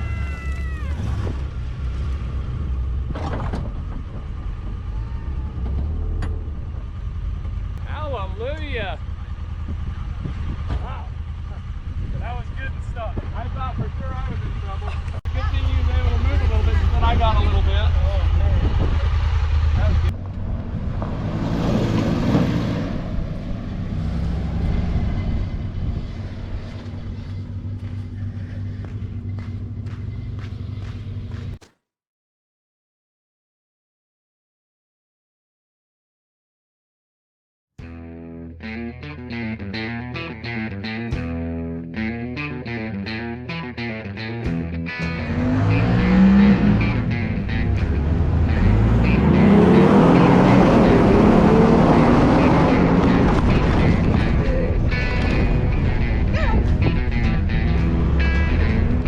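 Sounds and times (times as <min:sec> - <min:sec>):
vehicle engine rumbling: 0:00.0 - 0:31.7, 0:44.1 - 0:59.0.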